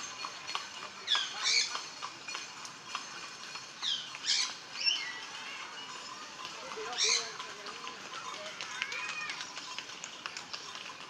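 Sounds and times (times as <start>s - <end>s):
birds squawking: 1.1s - 1.8s, 3.8s - 5.7s, 6.8s - 7.4s.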